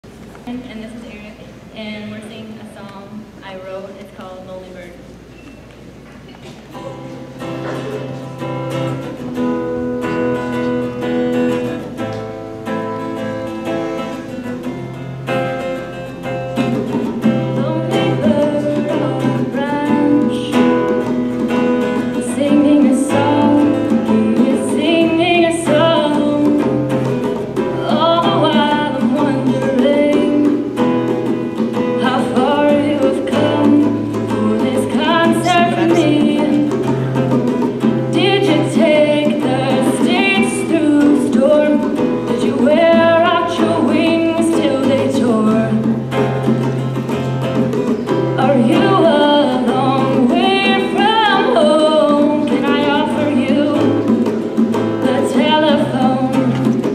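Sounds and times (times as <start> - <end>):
acoustic guitar playing: 0.0 - 56.9
person singing: 17.3 - 21.0, 27.6 - 30.7, 32.0 - 37.0.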